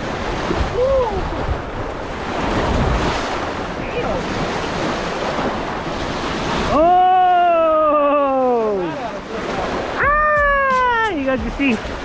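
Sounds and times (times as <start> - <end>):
wind buffeting microphone: 0.0 - 6.7
waves crashing against rocks: 0.0 - 12.0.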